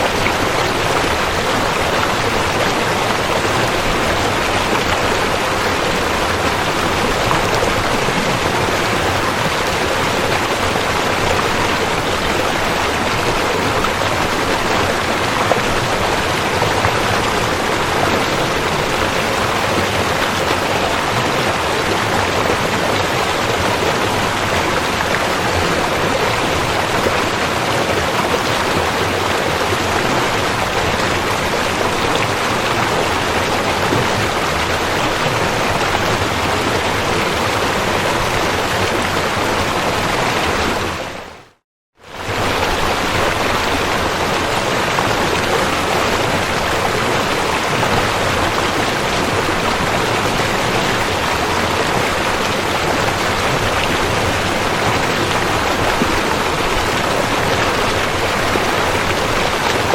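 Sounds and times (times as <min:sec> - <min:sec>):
river water rushing over rocks: 0:00.0 - 0:41.4, 0:42.0 - 0:59.9.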